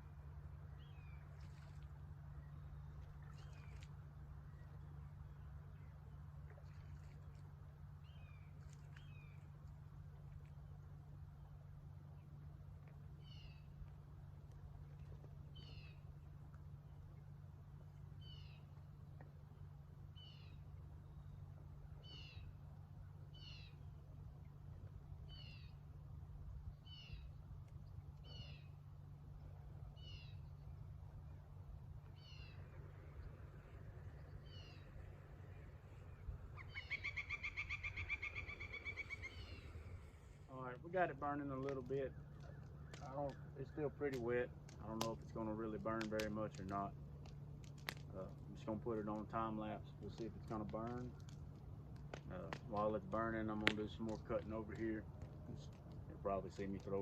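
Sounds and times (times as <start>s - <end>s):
steady low hum: 0.0s - 57.0s
bird calling: 13.2s - 13.8s, 15.5s - 16.1s, 18.1s - 18.7s, 28.2s - 28.8s, 29.4s - 31.4s, 32.0s - 44.1s.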